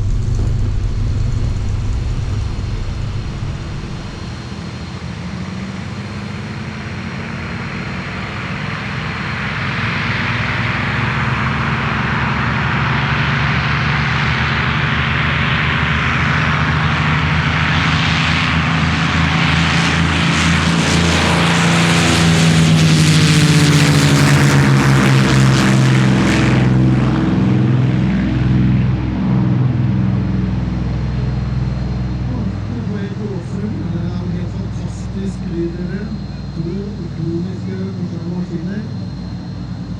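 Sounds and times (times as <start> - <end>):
propeller aircraft engine flying by: 0.0 - 39.9.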